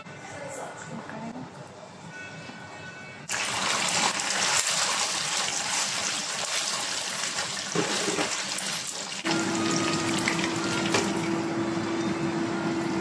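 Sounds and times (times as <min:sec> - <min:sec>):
chicken sizzling in hot oil: 0:03.3 - 0:11.6.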